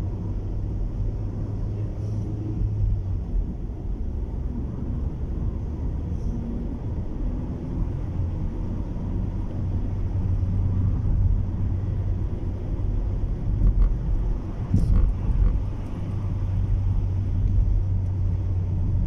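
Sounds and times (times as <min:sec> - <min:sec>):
car road and wind rumble: 0:00.0 - 0:19.0.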